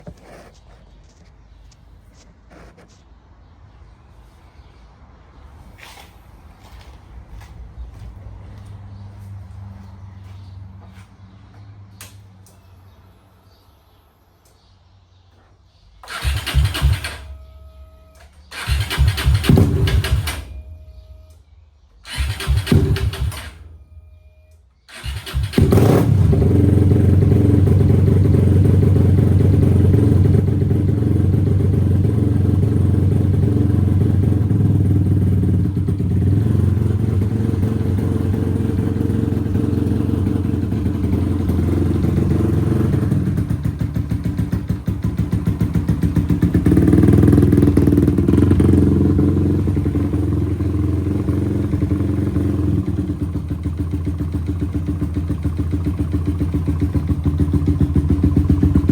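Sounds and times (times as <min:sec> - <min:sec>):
single-cylinder engine idling: 0:22.0 - 0:58.9.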